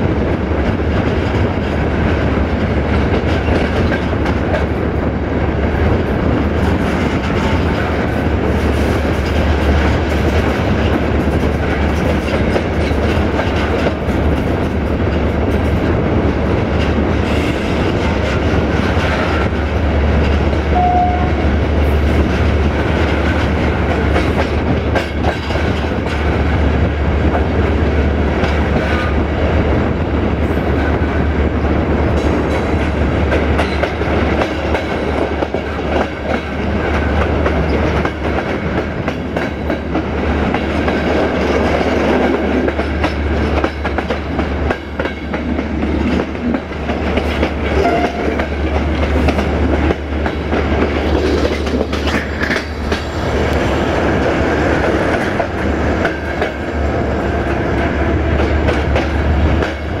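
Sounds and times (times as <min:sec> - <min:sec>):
train rumbling along track: 0:00.0 - 1:00.0
wheels clicking over rail joints: 0:06.5 - 0:21.1, 0:21.7 - 0:26.6, 0:32.1 - 1:00.0.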